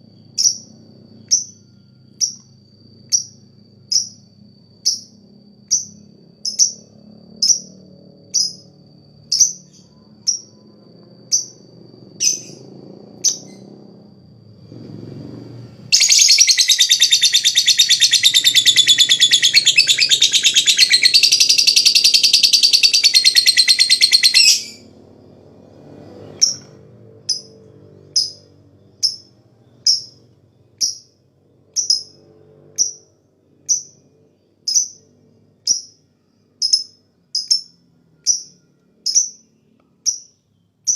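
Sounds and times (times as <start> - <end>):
lovebird chattering trill: 15.9 - 24.8
lovebird single chirps: 15.9 - 24.8.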